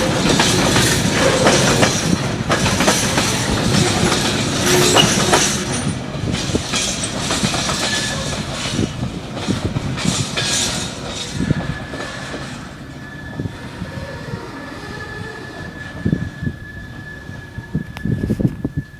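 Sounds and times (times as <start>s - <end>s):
wheels clicking over track: 0.0s - 12.6s
train running on rails: 0.0s - 18.9s
thin high squeal: 3.8s - 6.0s.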